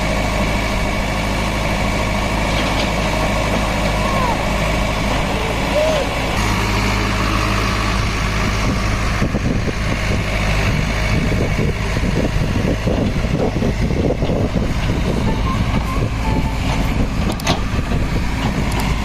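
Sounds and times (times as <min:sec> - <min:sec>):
heavy diesel engine running: 0:00.0 - 0:19.0
irregular knocks and clatter: 0:16.6 - 0:19.0.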